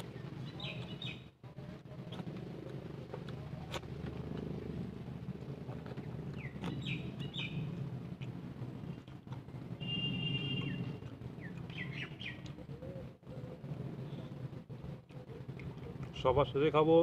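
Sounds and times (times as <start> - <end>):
birds chirping: 0.0 - 2.3, 6.0 - 7.8, 9.8 - 16.2.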